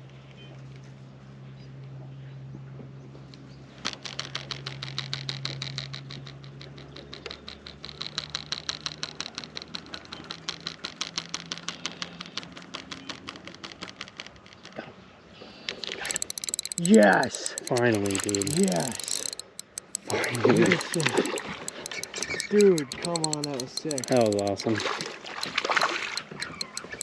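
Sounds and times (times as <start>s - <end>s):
fishing reel clicking: 4.0s - 14.2s, 15.8s - 27.0s.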